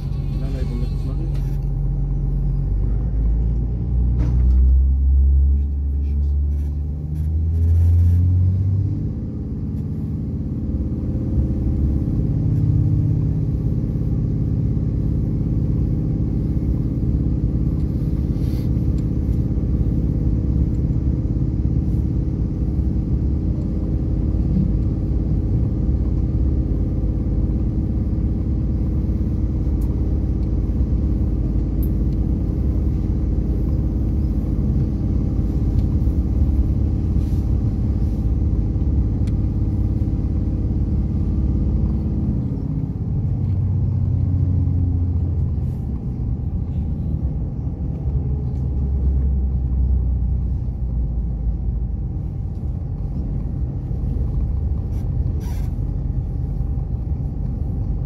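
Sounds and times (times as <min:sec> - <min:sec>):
railcar rumble from inside: 0:00.0 - 0:58.0
steady running drone: 0:00.0 - 0:58.0.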